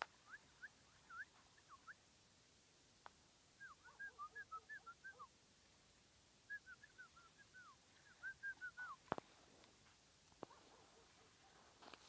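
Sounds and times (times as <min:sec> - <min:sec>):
bird whistled chirps: 0:00.2 - 0:02.0, 0:03.6 - 0:05.3, 0:06.5 - 0:09.0.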